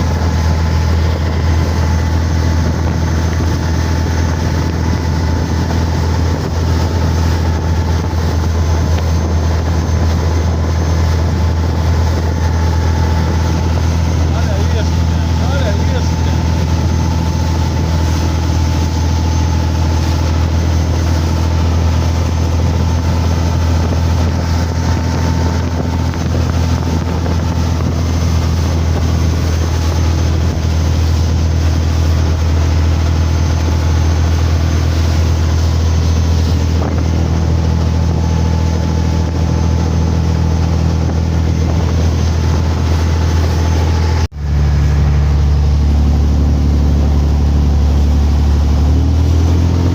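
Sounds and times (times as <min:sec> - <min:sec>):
motorboat engine humming: 0:00.0 - 0:49.9
rushing air or water: 0:00.0 - 0:49.9.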